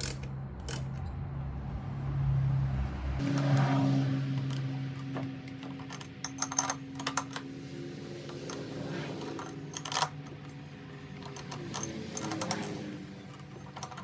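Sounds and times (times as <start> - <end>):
metal parts clinking on workbench: 0.0 - 1.1, 4.4 - 14.0.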